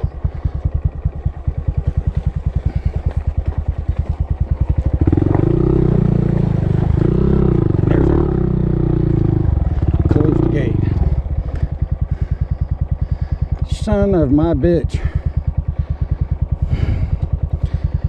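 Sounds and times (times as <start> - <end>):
motorbike engine idling and pulling away: 0.0 - 18.0.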